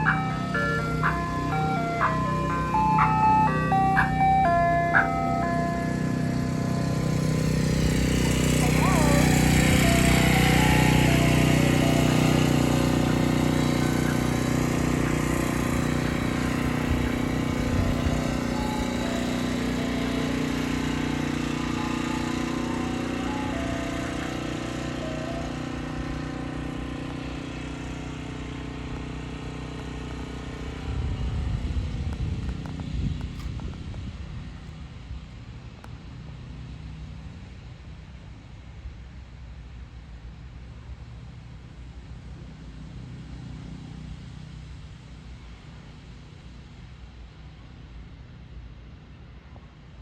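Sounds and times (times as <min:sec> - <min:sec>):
ice cream truck jingle: 0:00.0 - 0:27.6
truck engine running: 0:00.0 - 0:34.2.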